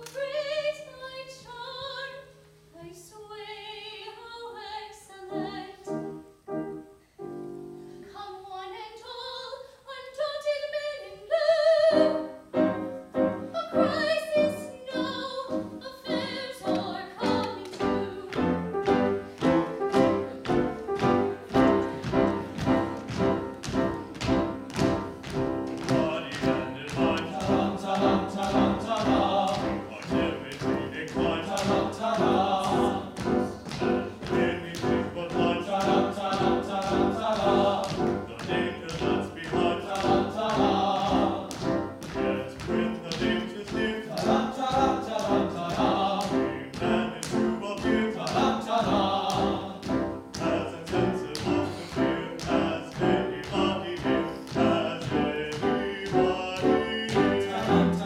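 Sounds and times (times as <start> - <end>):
operatic female singing: 0.0 - 2.2, 2.8 - 5.9, 8.1 - 12.3, 13.5 - 18.6
instrumental accompaniment: 11.9 - 58.0.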